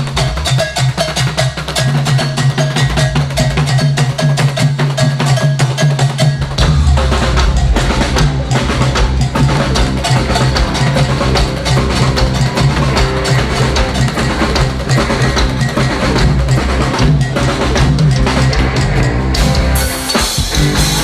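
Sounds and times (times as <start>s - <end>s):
fast percussion: 0.0s - 21.0s
bass line: 6.4s - 21.0s.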